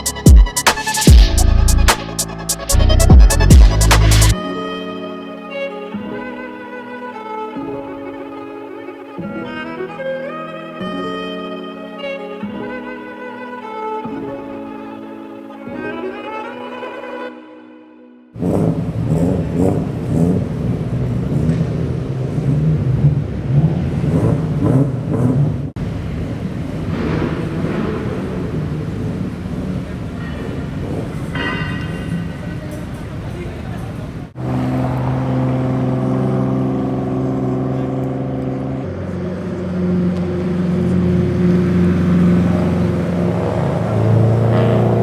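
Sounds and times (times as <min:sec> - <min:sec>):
car engine rumbling: 0:00.0 - 0:04.4, 0:18.4 - 0:30.1, 0:34.1 - 0:45.0.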